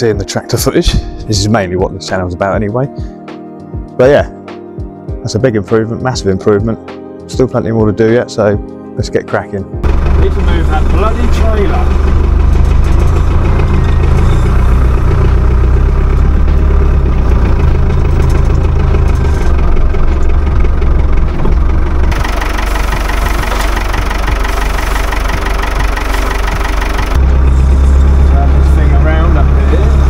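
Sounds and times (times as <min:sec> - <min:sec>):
tractor engine rumbling: 0:09.8 - 0:30.0.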